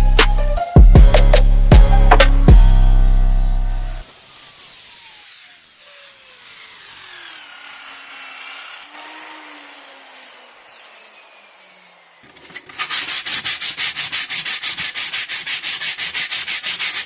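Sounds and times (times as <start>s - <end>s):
background music: 0.0s - 4.0s
power tool rasping on steel: 4.0s - 17.0s.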